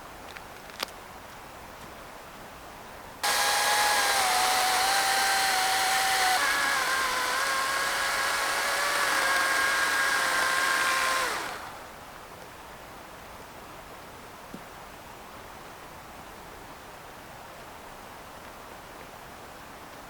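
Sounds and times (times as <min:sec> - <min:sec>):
small electric motor whining: 0:03.2 - 0:11.9.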